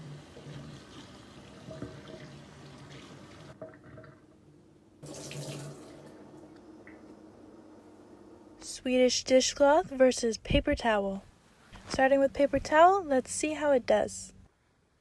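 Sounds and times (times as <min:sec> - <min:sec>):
water running from a tap: 0:00.0 - 0:03.6, 0:05.0 - 0:06.3.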